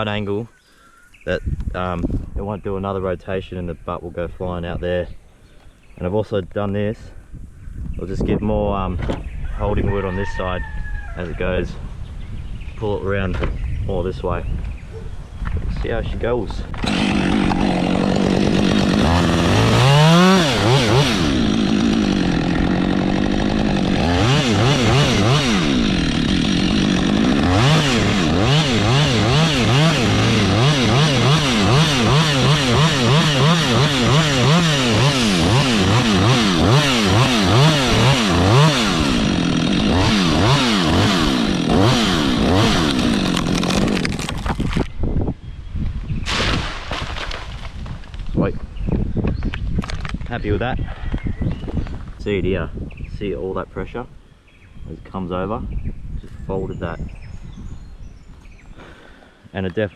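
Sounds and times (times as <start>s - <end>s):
chainsaw cutting wood: 16.6s - 44.9s, 46.3s - 48.0s.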